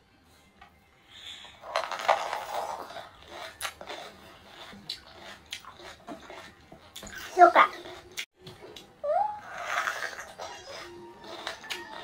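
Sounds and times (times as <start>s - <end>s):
crisp crunching and chewing: 1.7s - 8.3s, 9.7s - 12.0s.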